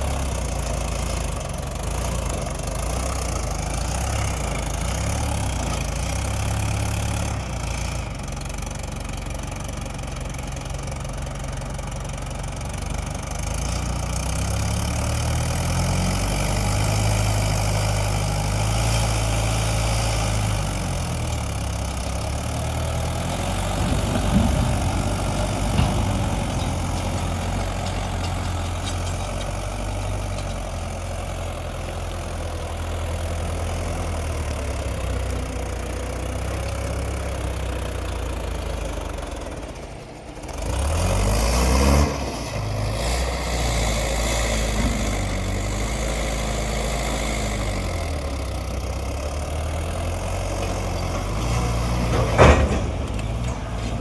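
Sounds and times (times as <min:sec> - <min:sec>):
tractor diesel engine running: 0:00.0 - 0:54.0
sharp knocks: 0:23.3 - 0:30.0.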